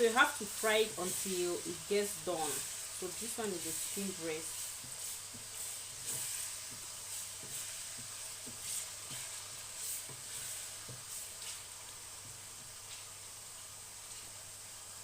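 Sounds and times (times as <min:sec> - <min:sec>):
chicken sizzling in a frying pan: 0:00.0 - 0:15.0
wooden spoon knocking on pan: 0:04.8 - 0:11.1.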